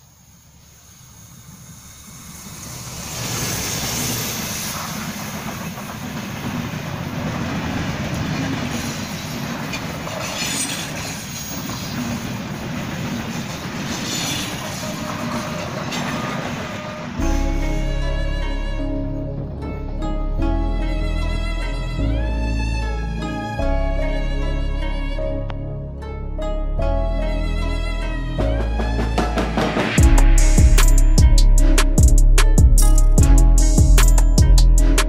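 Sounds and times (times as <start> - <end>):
train rumbling and rattling: 0.0 - 20.4, 28.4 - 35.0
wheels clacking over rail joints: 2.8 - 17.2
music: 17.2 - 35.0.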